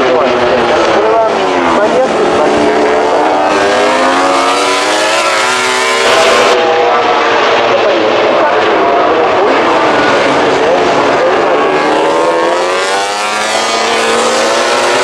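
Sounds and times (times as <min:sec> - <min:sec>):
racing motorcycle engines revving: 0:00.0 - 0:15.0.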